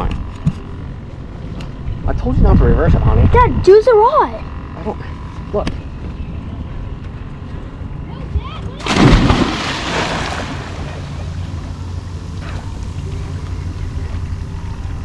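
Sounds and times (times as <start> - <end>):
steady low rumble: 8.7 - 15.0
person jumping into water: 8.8 - 11.8.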